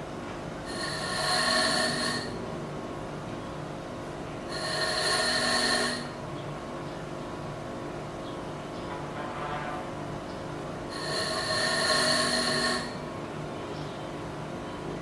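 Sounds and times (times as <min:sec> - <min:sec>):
low background hum: 0:00.0 - 0:15.0
small electric motor whining: 0:00.7 - 0:02.4, 0:04.5 - 0:06.2, 0:10.9 - 0:13.0.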